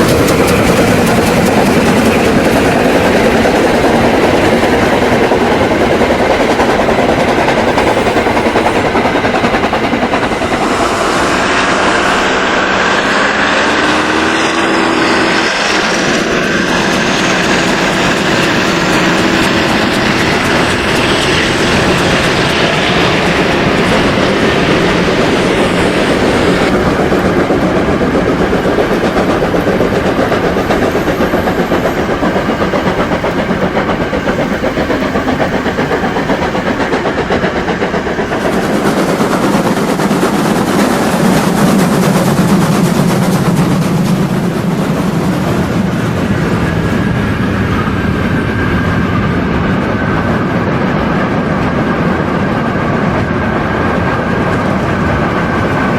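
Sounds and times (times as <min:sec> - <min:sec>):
wagons clattering over track: 0:00.0 - 0:12.3
model steam locomotive sound: 0:00.0 - 0:55.9.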